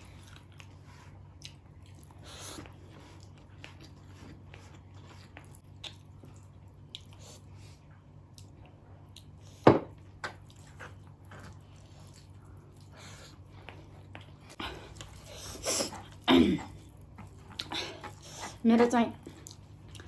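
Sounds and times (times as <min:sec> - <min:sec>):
person chewing: 0:00.0 - 0:07.6, 0:10.2 - 0:18.6, 0:19.2 - 0:20.0
low steady hum: 0:00.0 - 0:20.0.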